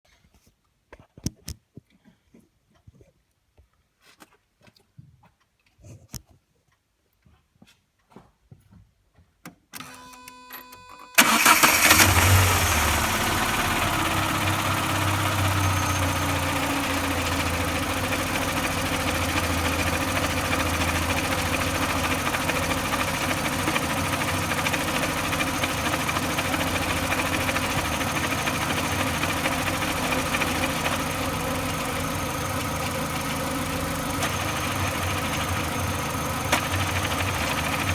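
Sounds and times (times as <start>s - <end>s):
brief steady tone: 9.8s - 11.2s
car engine starting and idling: 9.8s - 37.9s.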